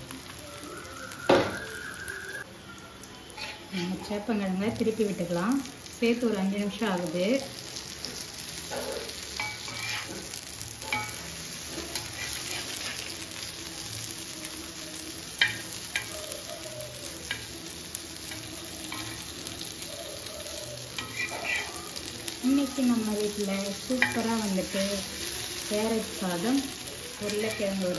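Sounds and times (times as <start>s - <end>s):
food sizzling in oil: 0.0s - 27.9s
spatula scraping a pan: 3.3s - 4.1s, 8.1s - 13.2s, 20.5s - 22.0s, 23.2s - 26.1s.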